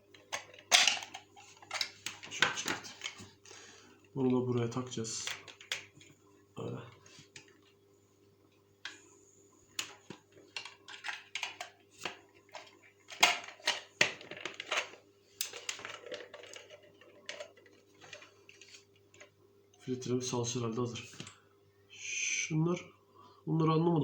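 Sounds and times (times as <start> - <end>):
faint steady hum: 0.0 - 24.0
plastic parts clicking and knocking: 0.1 - 3.2, 9.8 - 19.3.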